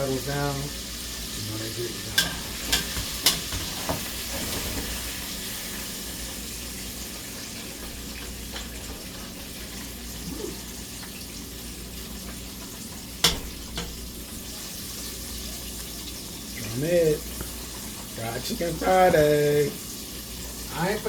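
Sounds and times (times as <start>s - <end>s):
chicken sizzling in hot oil: 0.0s - 21.0s.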